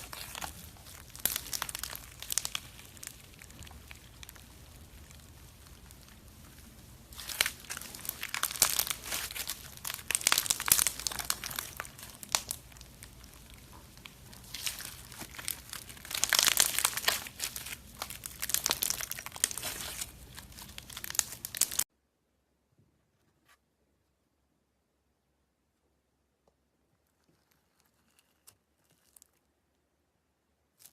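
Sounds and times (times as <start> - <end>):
slime squeezed by hand crackling: 0.0 - 21.8.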